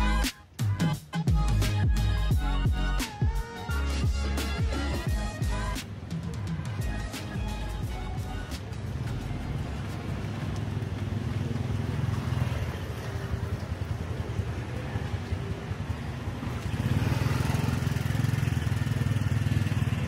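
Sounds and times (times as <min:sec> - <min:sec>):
motorbike engine running: 0:08.9 - 0:20.0.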